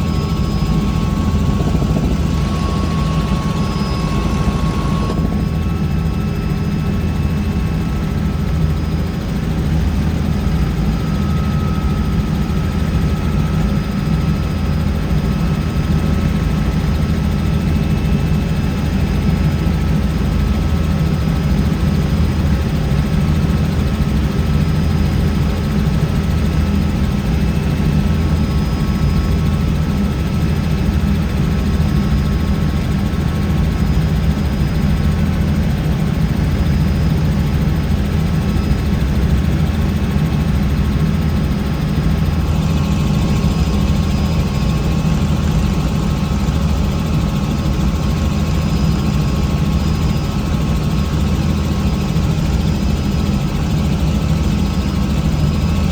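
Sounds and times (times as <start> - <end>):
faint high whines: 0.0 - 9.4
helicopter drone: 0.0 - 55.9.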